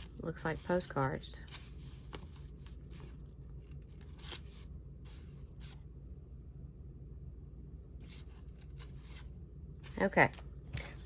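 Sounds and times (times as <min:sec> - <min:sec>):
paper rustling: 0:00.0 - 0:05.8
low steady hum: 0:00.0 - 0:11.0.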